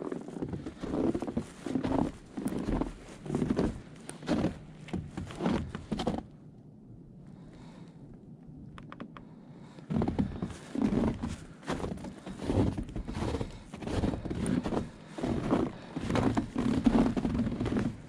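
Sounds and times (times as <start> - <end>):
footsteps crunching on trail: 0.0 - 6.2, 10.0 - 18.0.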